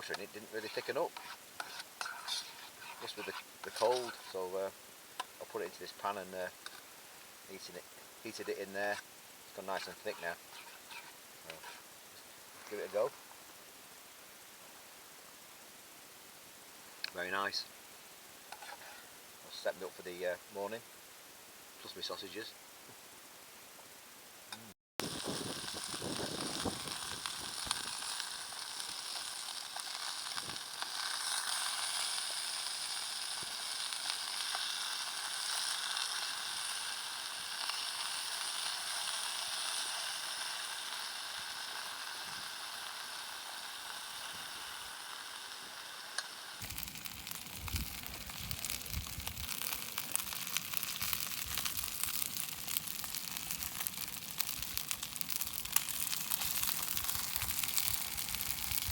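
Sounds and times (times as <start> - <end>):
gas burner hissing: 0.0 - 4.6, 25.0 - 58.9
rough crackling: 0.0 - 4.6, 7.5 - 11.9, 24.6 - 36.5, 46.6 - 58.9
sausages sizzling in a pan: 0.0 - 13.1, 24.4 - 58.9.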